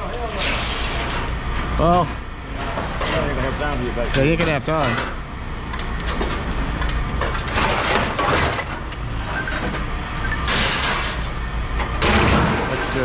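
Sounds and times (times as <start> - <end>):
heavy machine engine running: 0.0 - 13.0
scrap metal crunching: 6.0 - 13.0.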